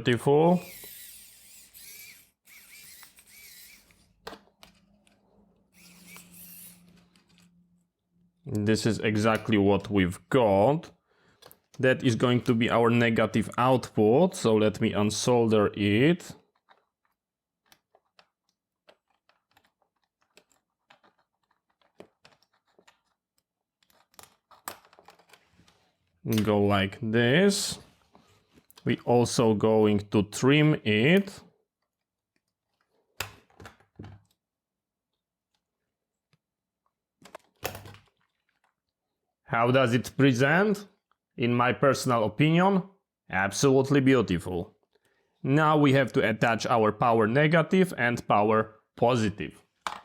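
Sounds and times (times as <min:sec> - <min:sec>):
small parts scraping and rustling: 0:00.5 - 0:07.9, 0:16.4 - 0:26.3, 0:37.2 - 0:38.9.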